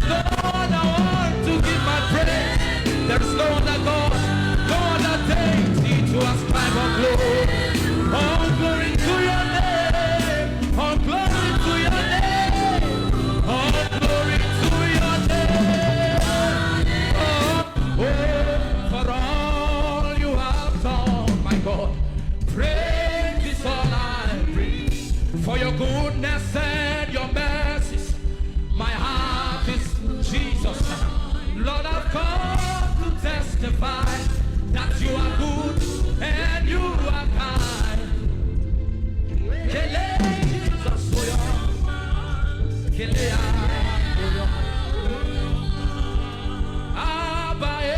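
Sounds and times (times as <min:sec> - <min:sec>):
people singing: 0:00.0 - 0:38.4, 0:39.3 - 0:47.9
band with steady beat: 0:00.0 - 0:47.9.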